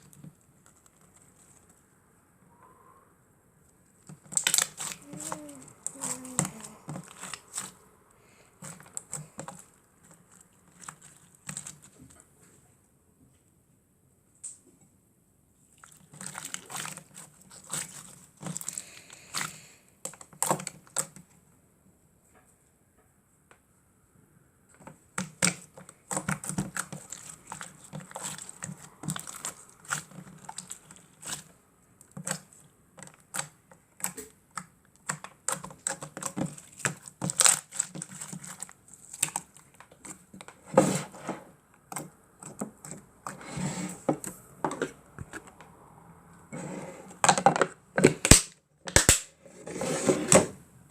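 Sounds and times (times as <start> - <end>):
slime squeezed by hand: 4.3 - 7.8.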